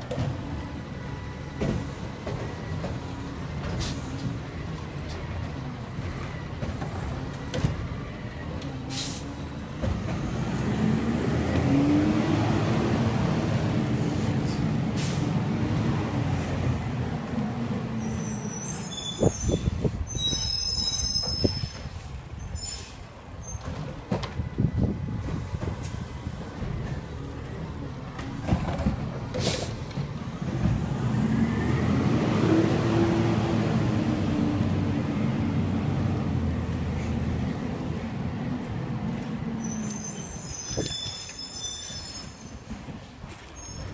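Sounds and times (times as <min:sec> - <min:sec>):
high squeals: 0:18.0 - 0:23.7, 0:39.5 - 0:43.9.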